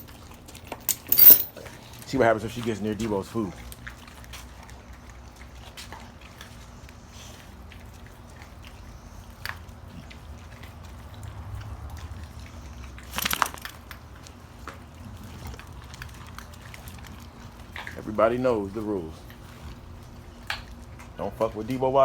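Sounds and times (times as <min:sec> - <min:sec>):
dogs crunching bones: 0:09.5 - 0:18.1.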